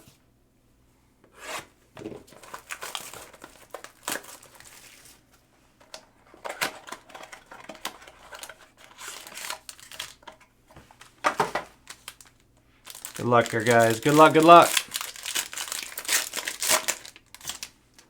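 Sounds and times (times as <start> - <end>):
plastic wrapping crinkling and tearing: 2.3 - 5.2, 6.4 - 10.3, 11.8 - 18.0.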